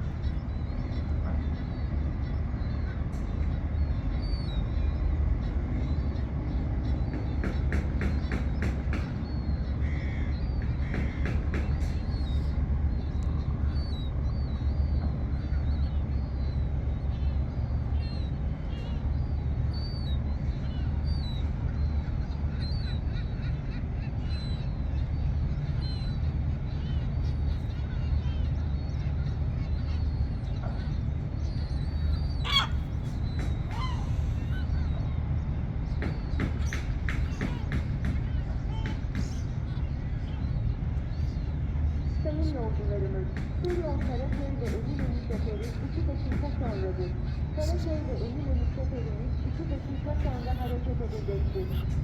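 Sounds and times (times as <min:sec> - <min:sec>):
harsh bird calls: 0:00.0 - 0:52.0
steady low rumble: 0:00.0 - 0:52.0
high wavering bird chirps: 0:28.4 - 0:35.2, 0:46.6 - 0:52.0.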